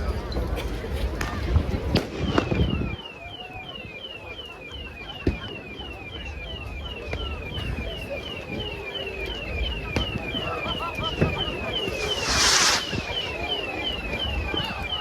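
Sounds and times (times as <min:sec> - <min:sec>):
crowd murmur: 0:00.0 - 0:15.0
firework bangs: 0:11.7 - 0:14.5.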